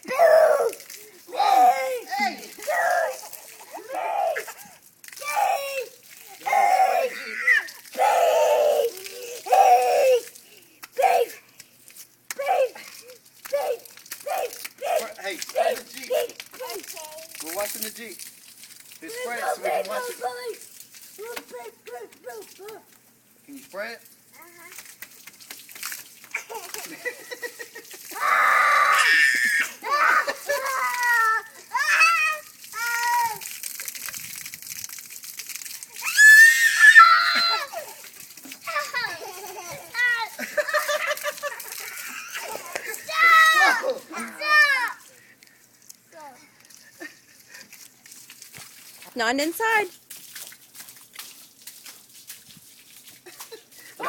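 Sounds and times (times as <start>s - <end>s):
child shrieking: 0.0s - 10.4s, 28.1s - 33.5s, 36.0s - 38.0s, 41.9s - 45.0s.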